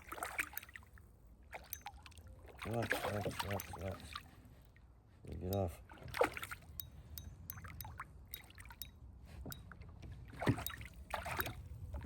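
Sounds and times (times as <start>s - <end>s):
water splashing: 0.0s - 0.9s, 1.5s - 4.3s, 5.8s - 6.8s, 9.7s - 12.0s.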